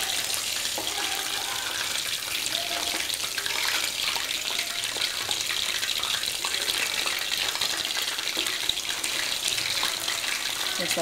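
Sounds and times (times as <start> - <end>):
chicken wings frying in oil: 0.0 - 11.0.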